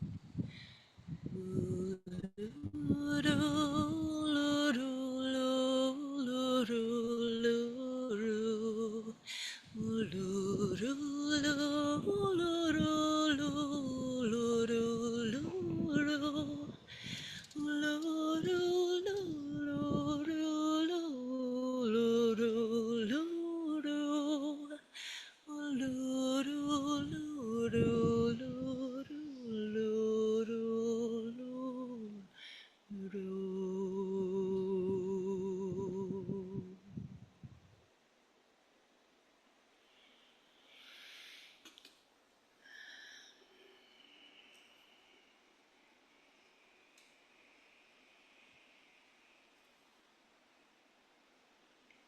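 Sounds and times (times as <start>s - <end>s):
person singing unaccompanied: 0.0s - 37.2s.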